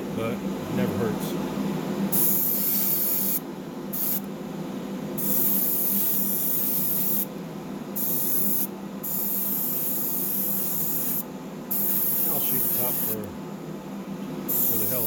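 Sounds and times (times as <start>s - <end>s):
steady low hum: 0.0s - 15.0s
airbrush spraying hiss: 2.1s - 3.4s, 4.0s - 4.3s, 5.2s - 7.3s, 8.0s - 13.3s, 14.5s - 15.0s.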